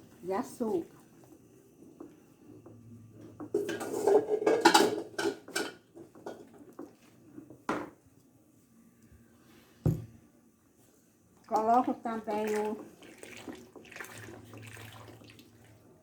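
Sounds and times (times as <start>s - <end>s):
pot and utensil clattering: 3.5s - 6.9s.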